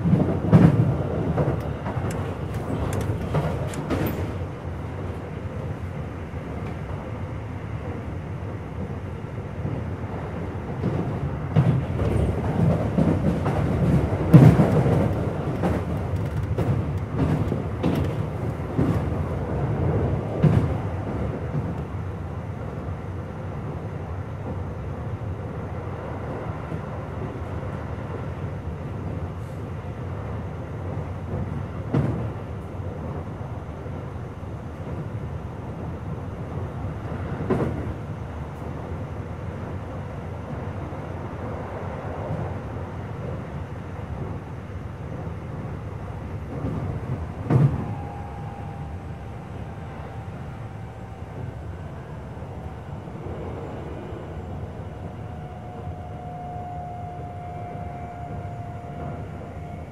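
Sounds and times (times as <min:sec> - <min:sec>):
rail joint clacks: 0:00.0 - 0:05.7, 0:09.6 - 0:22.1, 0:34.8 - 0:39.0, 0:45.0 - 0:59.9
train wheels rumbling on rail: 0:00.0 - 0:59.9.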